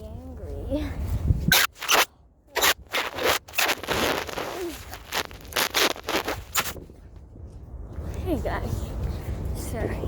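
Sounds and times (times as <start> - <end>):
scraping and crunching: 1.5 - 6.8.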